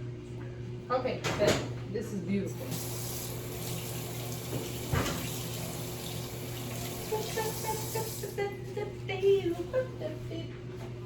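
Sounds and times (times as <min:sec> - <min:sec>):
tap water running into sink: 0:02.5 - 0:08.4.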